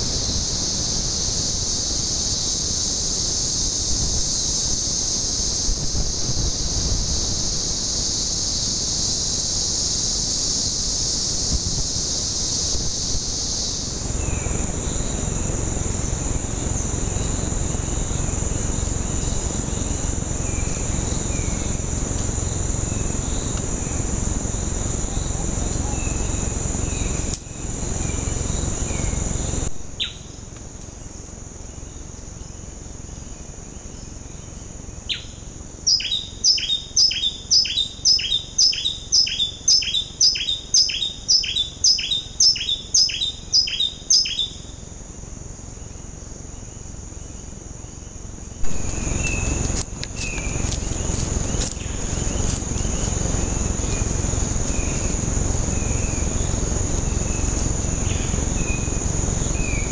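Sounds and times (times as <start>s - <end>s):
insect drone: 0.0s - 59.9s
bird sharp falling calls: 35.9s - 44.7s
low rushing noise: 48.6s - 59.9s.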